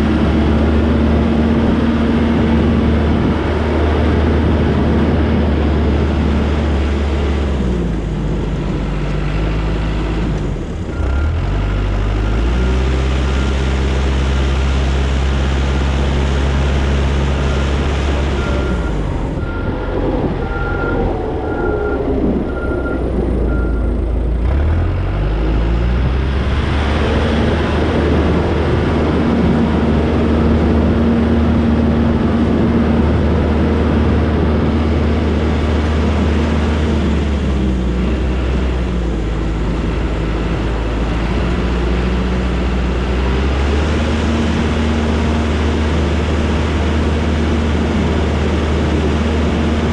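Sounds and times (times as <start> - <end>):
diesel engine under load: 0.0 - 49.9
backup alarm beeping: 18.2 - 23.9.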